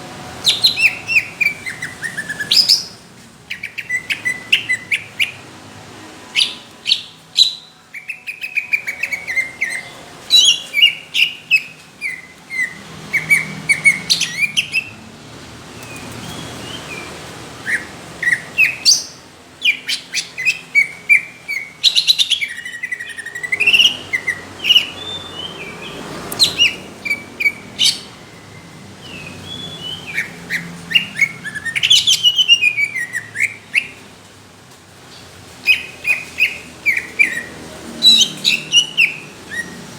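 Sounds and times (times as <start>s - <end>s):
bird singing varied song: 0.3s - 5.5s, 6.2s - 15.1s, 15.7s - 34.1s, 35.1s - 39.9s.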